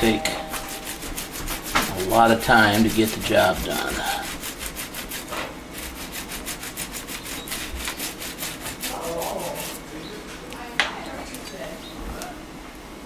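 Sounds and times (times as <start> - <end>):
toothbrush scrubbing saw blade: 0.0 - 9.9.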